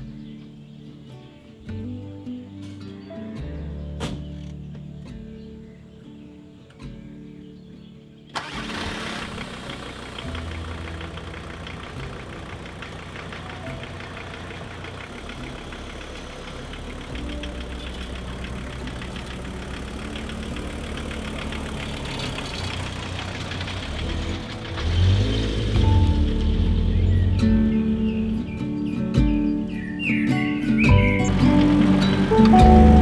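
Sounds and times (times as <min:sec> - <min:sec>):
van engine starting and idling: 0:08.3 - 0:33.0.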